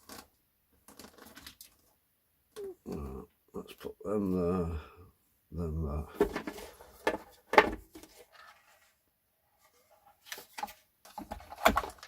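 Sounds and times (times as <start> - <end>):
radio parts clicking and knocking: 6.2 - 8.2, 10.4 - 12.0.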